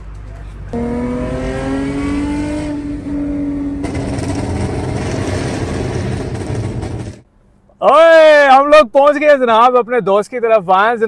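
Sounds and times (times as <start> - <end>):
road rumble: 0.0 - 10.3
car engine accelerating: 0.3 - 7.2.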